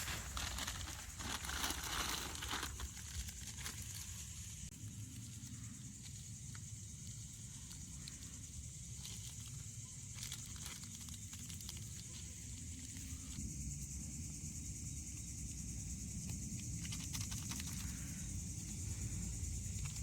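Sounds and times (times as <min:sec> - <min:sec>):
campfire crackling and hissing: 0:00.0 - 0:13.9.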